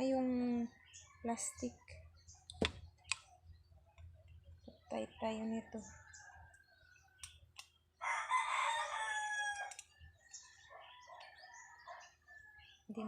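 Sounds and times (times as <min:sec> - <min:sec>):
rooster crowing: 0:08.0 - 0:09.8.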